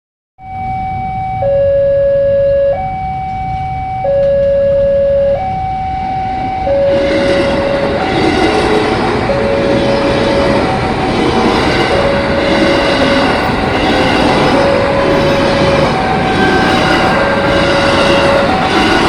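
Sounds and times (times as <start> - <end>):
level crossing two-tone alarm: 0.4 - 19.0
approaching train rumble: 4.7 - 19.0.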